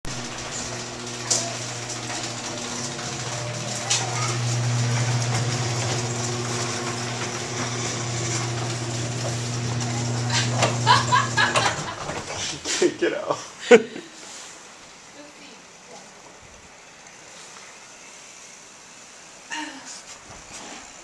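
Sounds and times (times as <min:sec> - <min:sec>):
low motor hum: 0:00.0 - 0:12.3.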